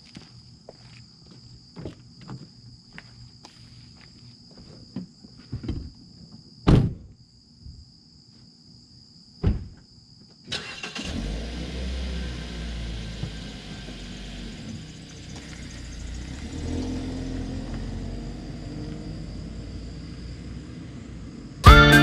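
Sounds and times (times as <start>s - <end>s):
footsteps: 0.0s - 6.0s
loud thumps: 6.6s - 7.1s, 9.4s - 9.8s
car engine starting and running: 10.5s - 22.0s.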